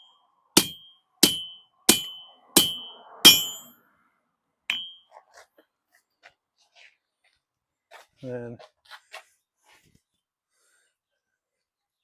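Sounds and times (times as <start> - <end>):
hammer striking steel on anvil: 0.0 - 3.8, 4.7 - 5.0.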